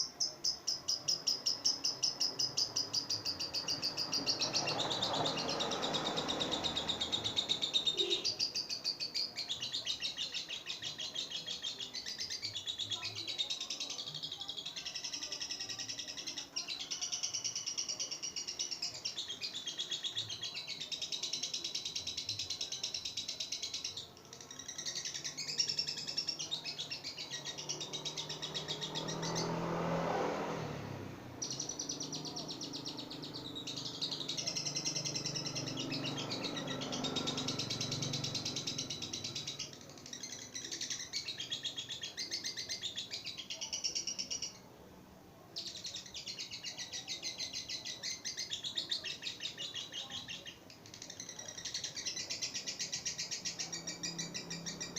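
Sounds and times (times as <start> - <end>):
lovebird chattering trills: 31.4 - 44.6, 45.6 - 54.9.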